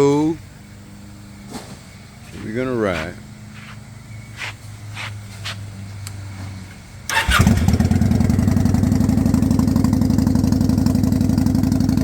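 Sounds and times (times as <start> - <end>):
electric starter cranking: 7.1 - 8.1
motorcycle engine idling: 7.1 - 12.0.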